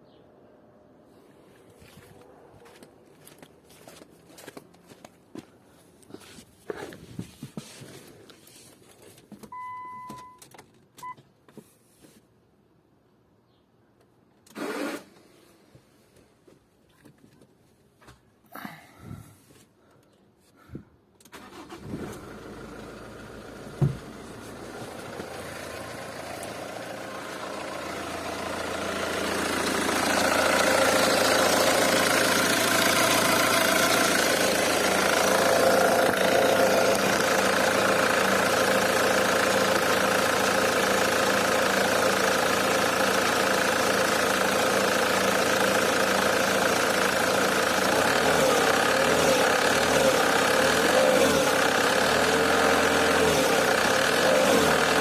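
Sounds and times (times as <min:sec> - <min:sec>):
diesel engine clattering: 0:21.4 - 0:55.0.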